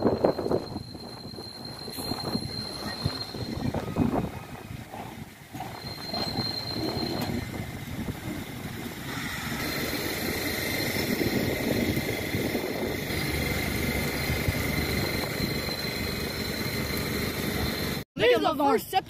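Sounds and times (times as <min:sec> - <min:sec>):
diesel locomotive engine rumble: 0:00.0 - 0:18.0
steady high whine: 0:05.5 - 0:18.0.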